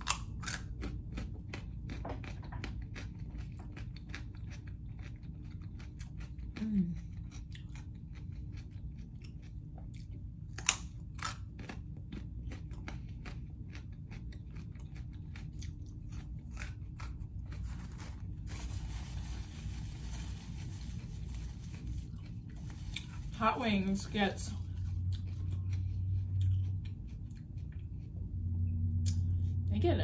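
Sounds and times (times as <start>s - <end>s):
carrot crunching: 0.0s - 28.0s
paper napkin rustling: 17.6s - 23.9s.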